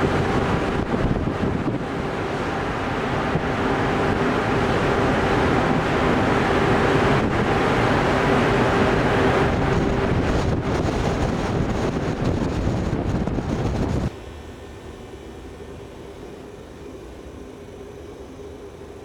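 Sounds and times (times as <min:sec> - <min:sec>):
strong wind on microphone: 0:00.0 - 0:14.1
sea: 0:00.0 - 0:19.0
steady hum: 0:00.0 - 0:19.0.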